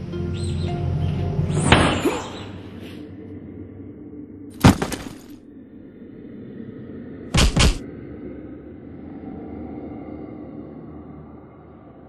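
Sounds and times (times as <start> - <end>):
music: 0.0 - 4.4
shattering crash: 4.6 - 5.4
sharp hit: 7.4 - 7.8.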